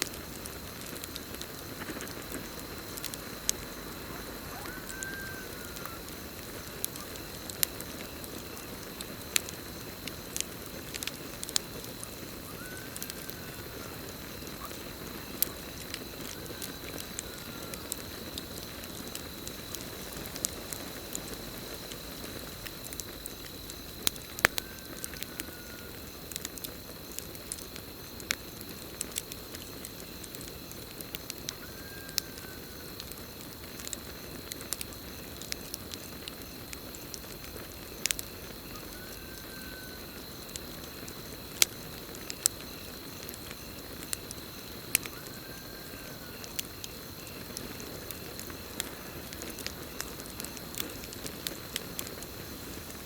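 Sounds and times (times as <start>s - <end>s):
campfire crackling and popping: 0.0s - 53.0s
crickets trilling: 0.0s - 53.0s
rising and falling call: 3.9s - 6.1s.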